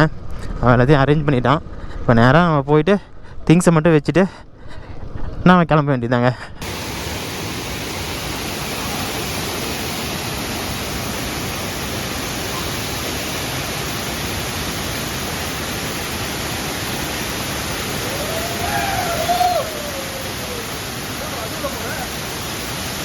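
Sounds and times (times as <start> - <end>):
steady rushing noise: 6.6 - 23.0.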